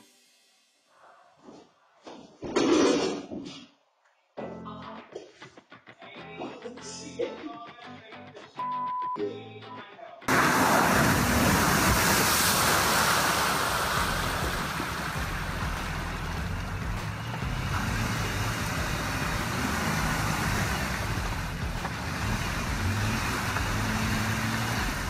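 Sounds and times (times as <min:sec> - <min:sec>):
engine revving: 0:10.3 - 0:25.0
mud spraying: 0:10.3 - 0:25.0
wheels spinning in mud: 0:10.3 - 0:25.0.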